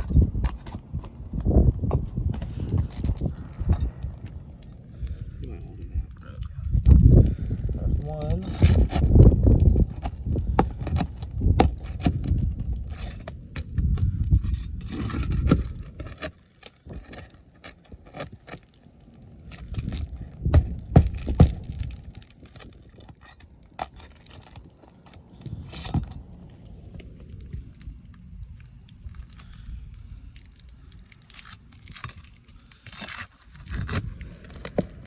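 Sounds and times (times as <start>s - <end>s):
low rumble: 0.0s - 16.3s, 19.0s - 35.0s
metal tool scraping nails: 8.4s - 9.2s, 10.8s - 18.7s, 19.6s - 26.2s, 31.4s - 34.1s.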